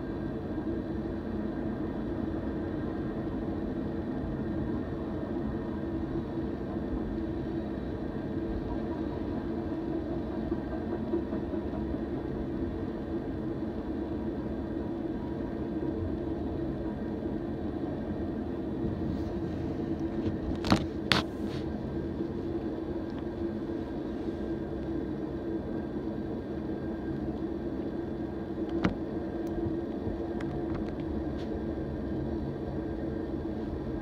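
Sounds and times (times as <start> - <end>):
freight train rolling past: 0.0 - 20.4.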